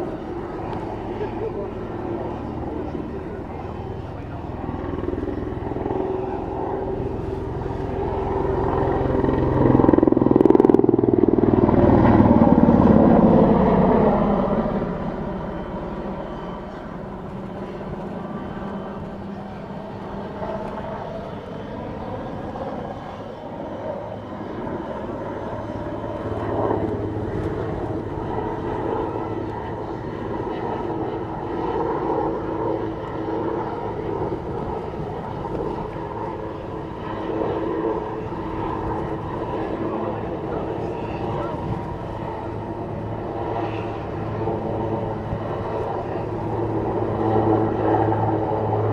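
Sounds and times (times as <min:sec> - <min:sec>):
helicopter engine and rotor: 0:00.0 - 0:48.9.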